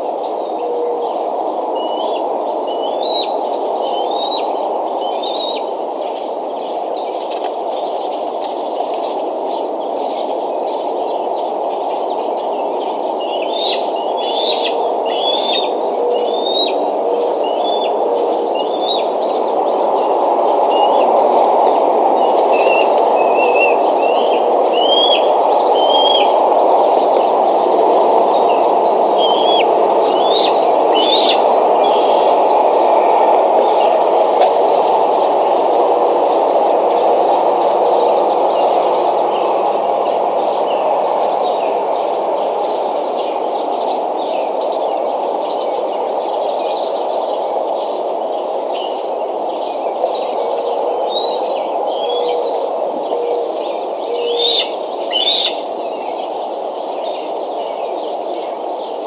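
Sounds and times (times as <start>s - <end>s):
steady rushing noise: 18.4s - 44.4s.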